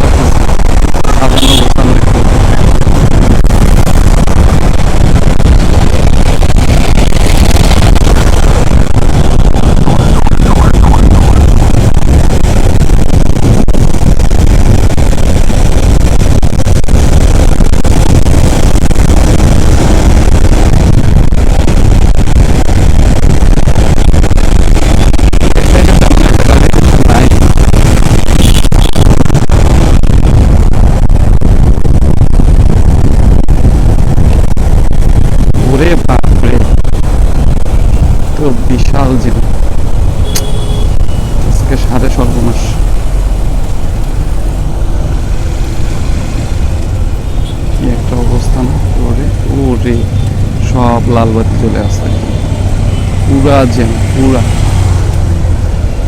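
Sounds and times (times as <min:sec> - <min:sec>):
motorcycle engine and road noise: 0:00.0 - 0:56.0.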